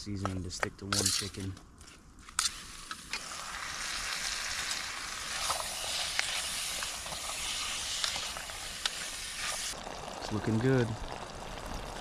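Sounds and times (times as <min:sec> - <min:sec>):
food sizzling in a pan: 0:02.4 - 0:12.0.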